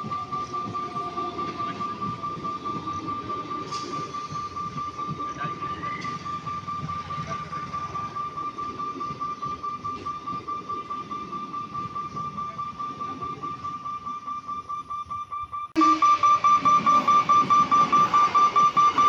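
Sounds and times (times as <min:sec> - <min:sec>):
train wheels clattering over joints: 0:00.0 - 0:14.6
steady high-pitched tone: 0:00.0 - 0:19.0.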